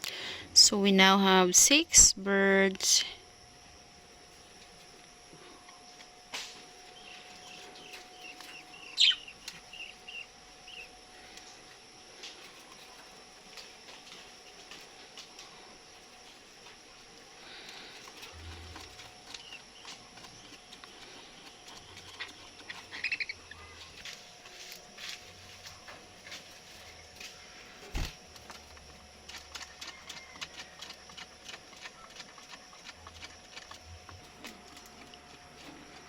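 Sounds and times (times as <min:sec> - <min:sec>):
budgie chirp: 0:07.0 - 0:10.9, 0:22.3 - 0:24.0.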